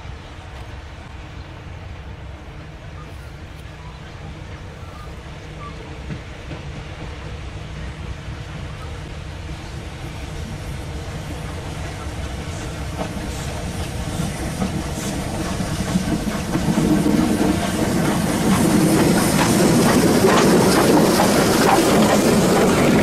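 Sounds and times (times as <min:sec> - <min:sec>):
train wheels clattering over joints: 0:10.9 - 0:23.0.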